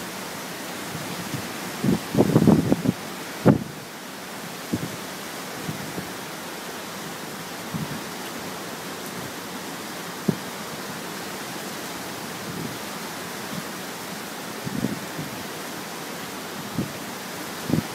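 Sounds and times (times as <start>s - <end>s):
roaring wind: 0.0s - 17.9s
wind thumps on microphone: 0.9s - 3.8s, 4.7s - 5.0s, 7.7s - 8.0s, 14.6s - 15.4s.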